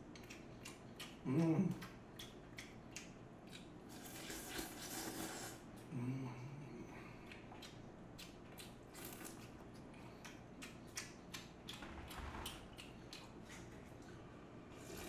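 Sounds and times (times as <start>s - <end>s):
chewing noodles with wet clicks: 0.0s - 4.7s, 7.1s - 14.2s.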